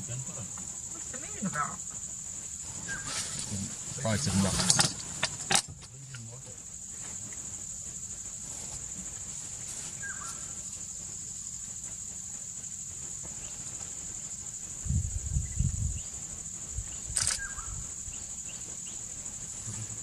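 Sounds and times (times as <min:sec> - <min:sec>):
insects shrilling: 0:00.0 - 0:20.0
low rumbling bumps: 0:00.0 - 0:20.0
short insect chirps: 0:00.0 - 0:20.0.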